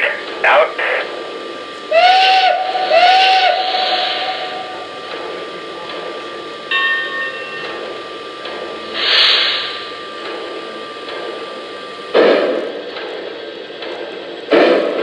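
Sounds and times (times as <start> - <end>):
steam hiss: 1.9 - 4.8, 8.9 - 10.0.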